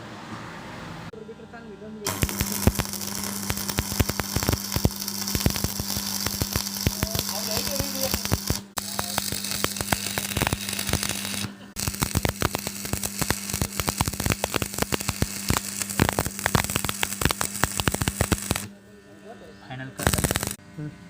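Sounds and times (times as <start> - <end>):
welding arc crackling: 2.1 - 18.7, 19.9 - 20.6
low hum: 2.1 - 21.0.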